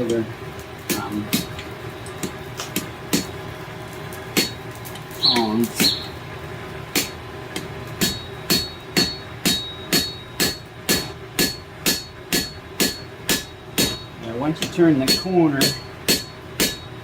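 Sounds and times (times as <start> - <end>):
hammer striking steel on anvil: 2.2 - 3.3, 4.4 - 4.6, 7.0 - 17.0.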